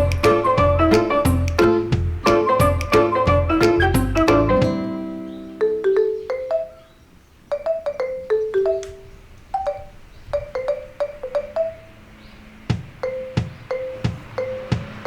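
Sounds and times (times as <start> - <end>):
low bass notes: 0.0 - 5.1
marimba-like mallet melody: 0.0 - 12.1, 12.7 - 15.0.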